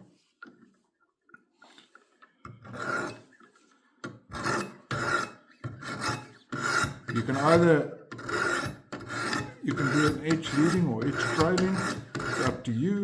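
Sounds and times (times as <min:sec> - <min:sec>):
sharpening stones rasping on knife: 0:02.7 - 0:03.3, 0:04.3 - 0:12.7.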